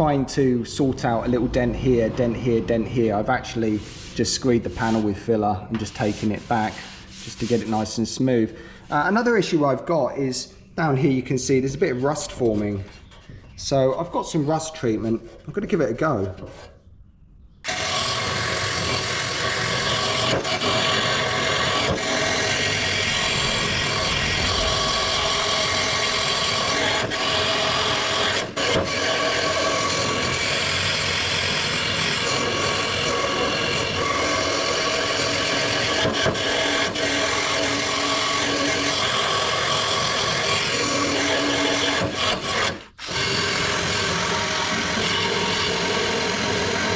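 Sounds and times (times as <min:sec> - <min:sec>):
sanding on steel: 0:03.4 - 0:08.3, 0:17.7 - 0:46.9.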